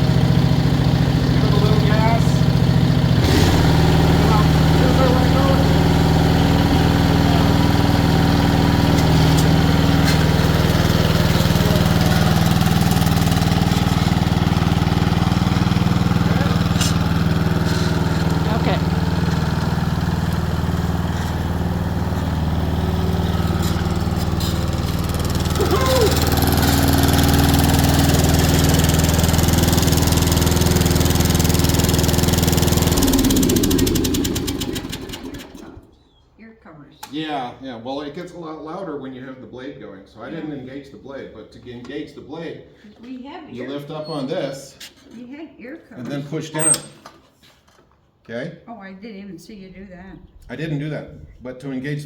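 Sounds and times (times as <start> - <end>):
lawnmower engine running: 0.0 - 35.9.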